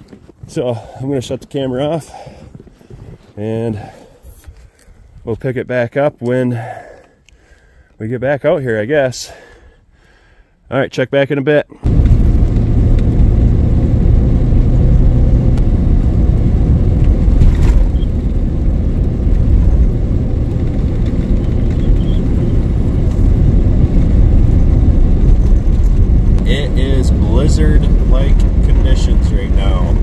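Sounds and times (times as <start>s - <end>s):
tyres on snowy road: 0.0s - 5.1s, 11.8s - 30.0s
truck engine rumble inside cab: 11.8s - 30.0s.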